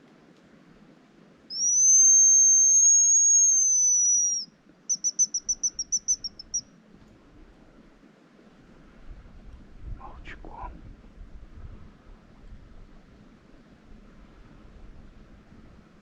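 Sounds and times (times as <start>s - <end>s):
decoy whistle bird call: 1.5s - 6.7s.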